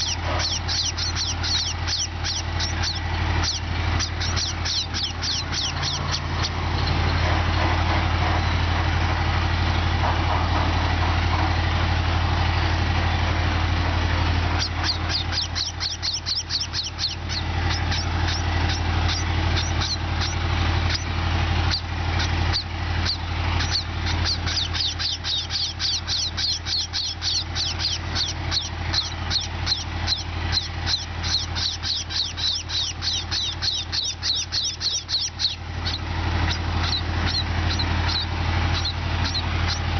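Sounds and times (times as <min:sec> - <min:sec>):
sparrows chirping: 0:00.0 - 0:11.7, 0:14.1 - 0:39.9
steady low drone: 0:00.0 - 0:39.9.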